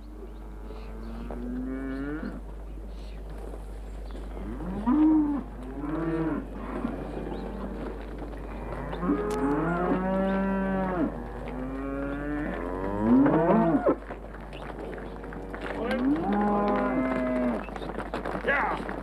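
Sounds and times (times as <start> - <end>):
cattle mooing: 4.4 - 14.0, 15.3 - 17.7.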